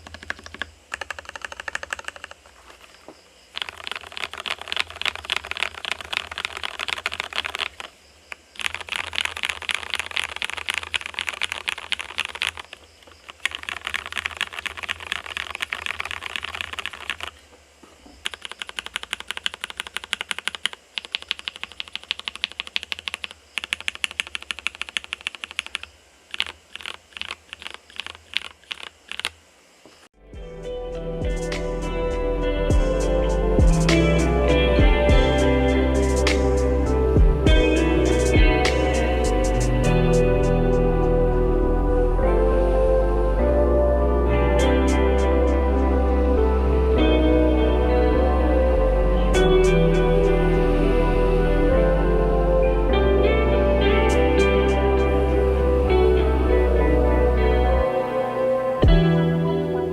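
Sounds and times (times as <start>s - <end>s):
mechanical keyboard typing: 0.0s - 2.5s, 3.5s - 7.9s, 8.6s - 17.3s, 18.2s - 29.4s
low hum: 30.2s - 59.9s.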